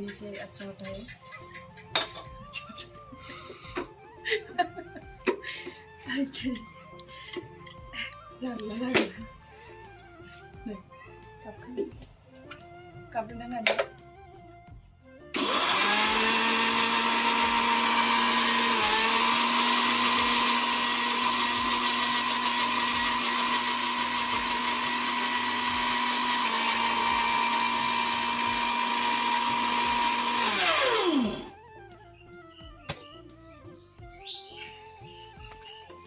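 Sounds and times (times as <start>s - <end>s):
mixer grinder motor whining: 15.2s - 31.8s.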